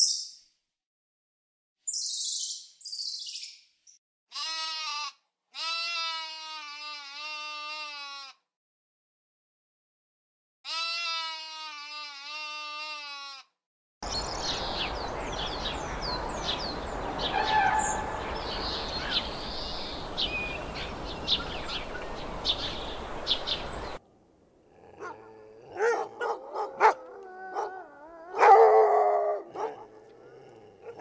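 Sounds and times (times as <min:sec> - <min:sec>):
small birds chirping: 0:00.0 - 0:00.4, 0:01.9 - 0:04.0, 0:14.0 - 0:24.0
sheep bleating: 0:04.3 - 0:08.4, 0:10.6 - 0:13.6
dog whining and yipping: 0:25.8 - 0:29.8.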